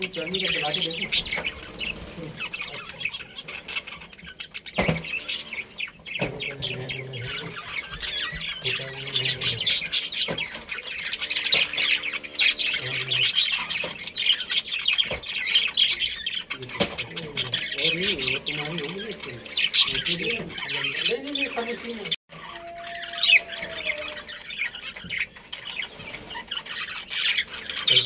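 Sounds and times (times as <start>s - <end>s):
budgerigars chattering and chirping: 0.0s - 28.0s.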